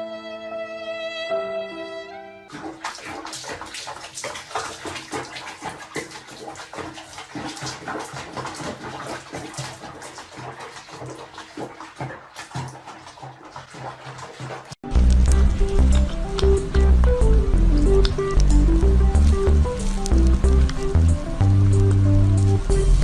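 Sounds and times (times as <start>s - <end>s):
music: 0.0s - 2.6s, 14.8s - 23.0s
water splashing and sloshing: 2.4s - 23.0s.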